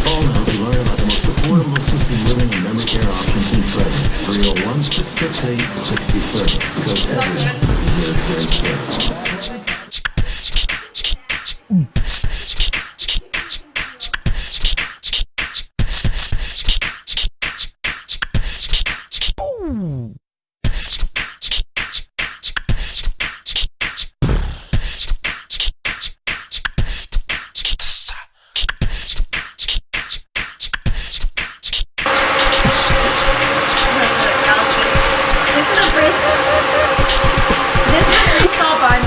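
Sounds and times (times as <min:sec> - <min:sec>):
beatboxing: 0:00.0 - 0:18.9, 0:20.6 - 0:39.0
noisy background with hum: 0:32.1 - 0:39.0.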